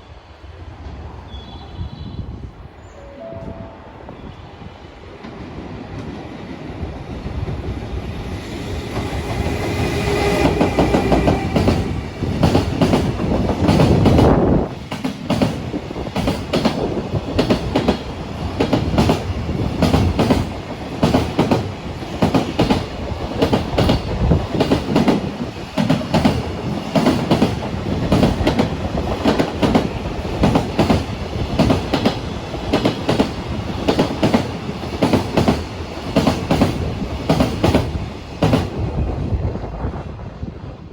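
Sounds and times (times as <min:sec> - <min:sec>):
train passing close by: 0:00.0 - 0:40.9.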